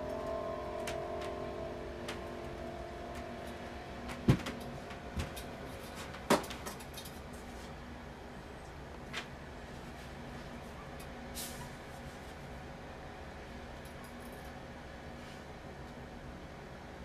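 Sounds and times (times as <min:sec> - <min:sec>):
ringing musical tone: 0:00.0 - 0:06.3.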